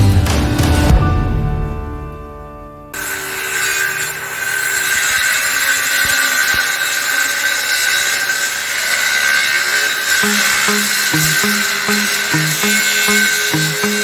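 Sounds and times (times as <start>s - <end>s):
power tool cutting wood: 3.0s - 14.0s.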